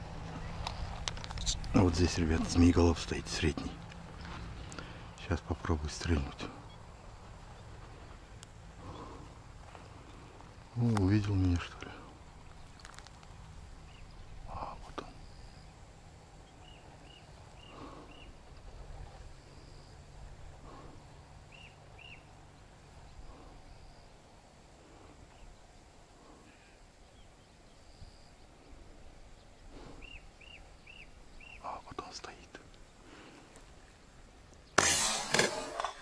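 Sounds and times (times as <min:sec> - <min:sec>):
low background noise: 0:00.0 - 0:36.0
small bird chirping: 0:12.3 - 0:18.4, 0:21.5 - 0:24.2, 0:29.3 - 0:33.0.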